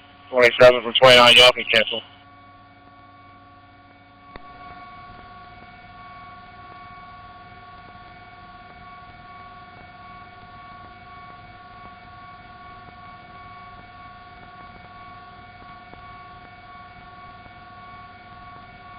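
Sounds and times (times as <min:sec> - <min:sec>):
helicopter whine: 0:00.3 - 0:02.0.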